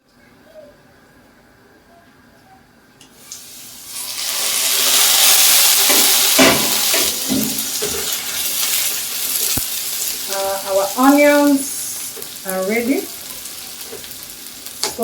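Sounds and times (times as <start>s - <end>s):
food sizzling in hot oil: 3.1s - 15.0s.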